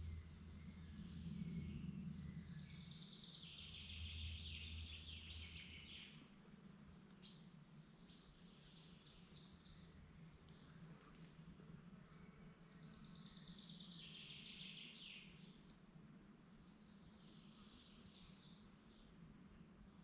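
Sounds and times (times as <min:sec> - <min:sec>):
faint low rumble: 0:00.0 - 0:14.0
songbirds singing: 0:00.0 - 0:20.0.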